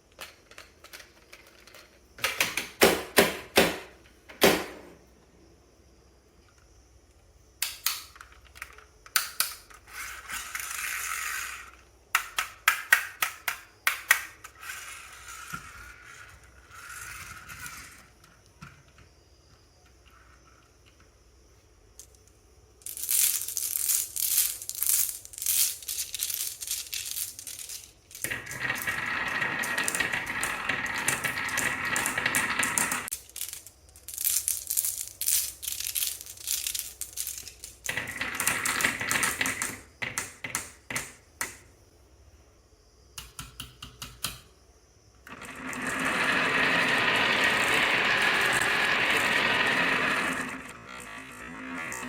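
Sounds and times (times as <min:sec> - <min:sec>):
marbles rolling rumble: 0:09.8 - 0:12.0, 0:14.4 - 0:19.2, 0:22.8 - 0:40.7, 0:45.3 - 0:52.0
marbles clattering down a run: 0:22.8 - 0:41.0, 0:45.3 - 0:52.0.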